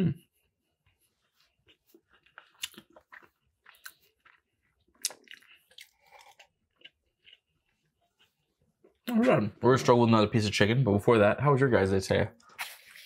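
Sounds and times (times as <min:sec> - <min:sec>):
person chewing food: 0:00.3 - 0:09.1.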